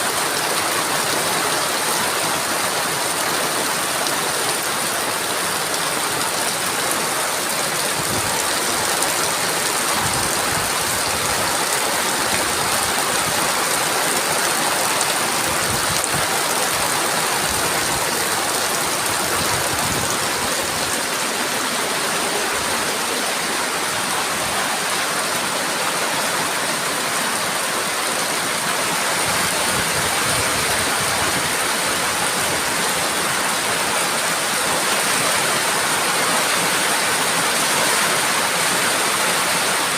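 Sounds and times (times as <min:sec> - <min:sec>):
heavy rain falling: 0:00.0 - 0:39.9
wind gusts rumbling: 0:15.4 - 0:24.4.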